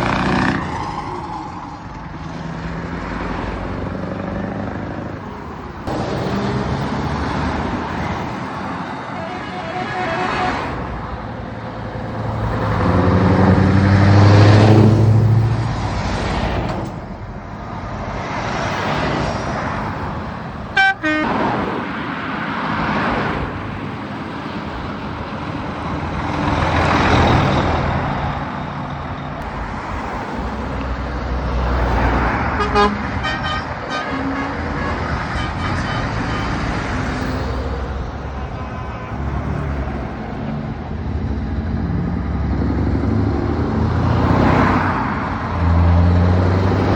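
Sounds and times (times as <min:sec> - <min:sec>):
heavy trucks driving past: 0:00.0 - 0:46.9
truck horn blast: 0:09.1 - 0:10.9, 0:20.8 - 0:21.5, 0:32.5 - 0:36.8, 0:38.2 - 0:39.7.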